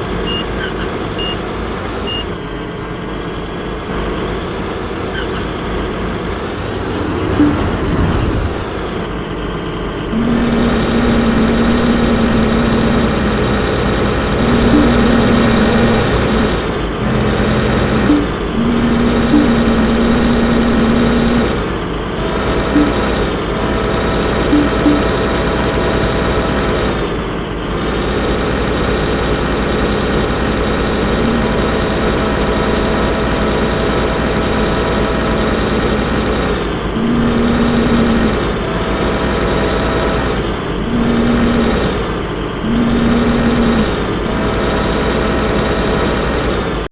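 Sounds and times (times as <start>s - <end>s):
higher engine tone: 0.0s - 27.0s, 30.8s - 36.3s, 36.9s - 46.2s
excavator engine running: 0.0s - 46.8s.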